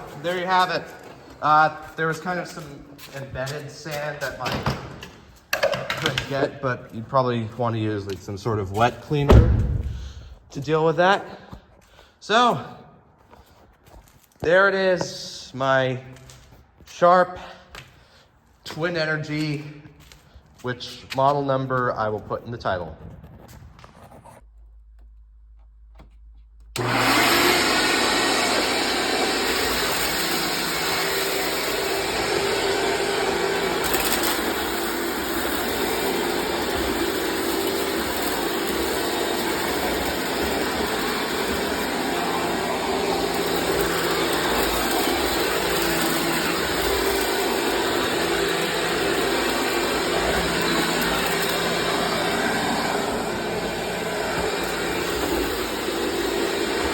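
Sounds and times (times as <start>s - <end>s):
vacuum cleaner motor whine: 26.8s - 56.9s.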